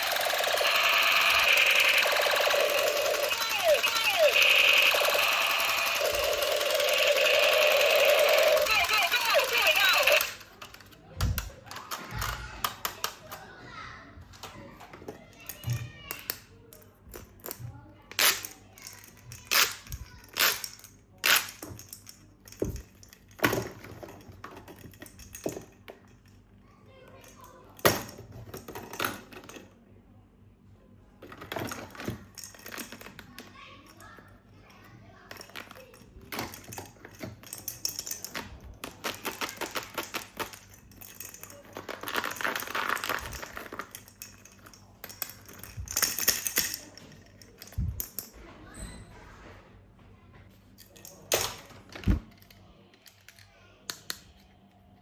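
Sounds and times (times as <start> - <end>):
plastic parts clicking and tapping: 0.0 - 13.4, 14.4 - 26.4, 35.3 - 48.3, 50.8 - 54.5.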